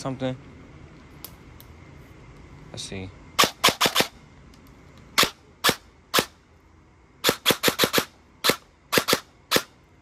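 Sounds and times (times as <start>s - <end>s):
airsoft gun shots: 3.4s - 4.1s, 5.2s - 6.4s, 7.2s - 9.7s.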